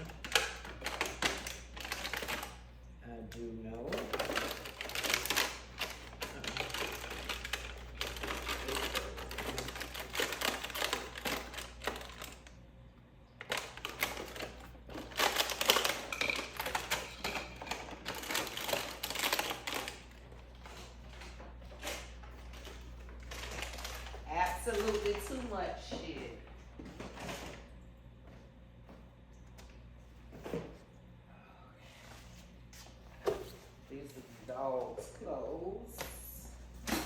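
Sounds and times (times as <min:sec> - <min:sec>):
steady low hum: 0:00.0 - 0:37.0
household items clattering: 0:13.5 - 0:27.6.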